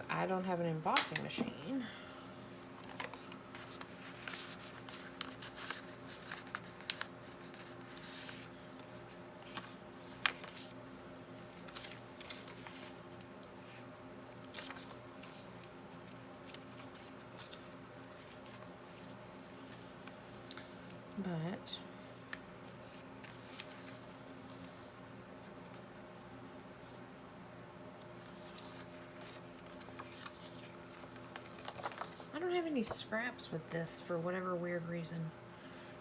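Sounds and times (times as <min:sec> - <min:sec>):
faint steady hum: 0:00.0 - 0:36.0
paper rustling: 0:02.6 - 0:10.8, 0:11.4 - 0:20.7, 0:22.3 - 0:25.8, 0:28.2 - 0:33.0.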